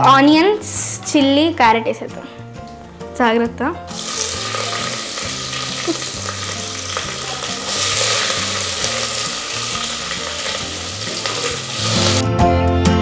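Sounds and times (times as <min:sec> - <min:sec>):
vegetables sizzling in oil: 0:03.9 - 0:12.2.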